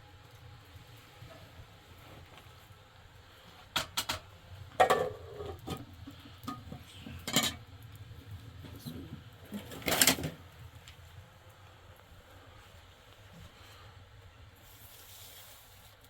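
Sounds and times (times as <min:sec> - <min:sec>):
dishes and utensils clattering: 0:04.8 - 0:07.6, 0:09.6 - 0:10.4.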